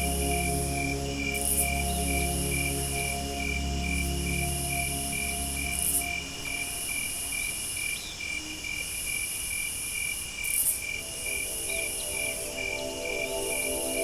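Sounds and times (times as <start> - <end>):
high insect buzzing: 0.0 - 8.3
soft sustained music tones: 0.0 - 9.4, 10.6 - 14.0
insects chirping: 0.0 - 14.0.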